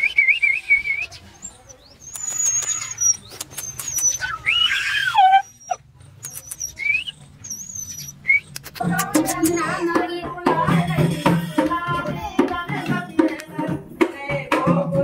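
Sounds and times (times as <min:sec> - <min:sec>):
birds whistling and chirping: 0:00.0 - 0:08.6
music with drums: 0:08.8 - 0:15.0.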